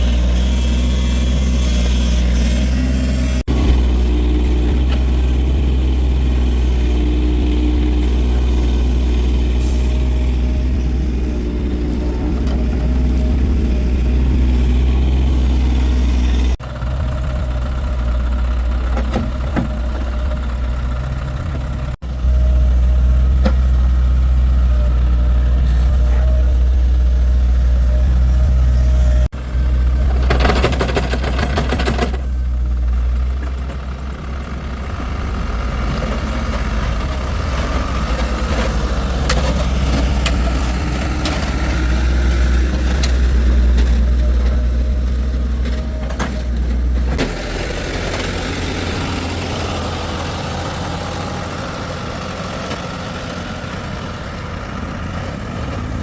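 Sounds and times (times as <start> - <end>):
heavy vehicle engine droning: 0.0 - 56.0
harsh rattling noise: 30.0 - 32.3.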